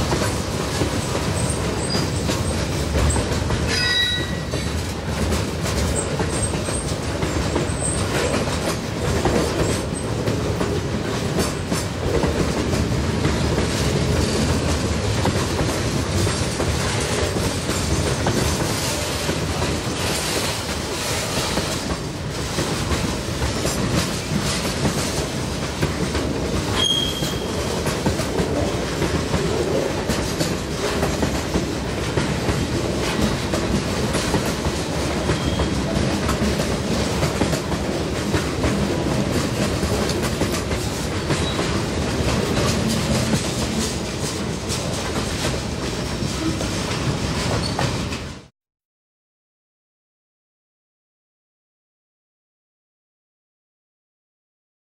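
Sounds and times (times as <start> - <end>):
freight train rolling past: 0.0 - 48.5
wheels clacking over rail joints: 0.0 - 48.5
high wheel squeals: 3.7 - 4.5, 26.8 - 27.6, 35.3 - 35.8.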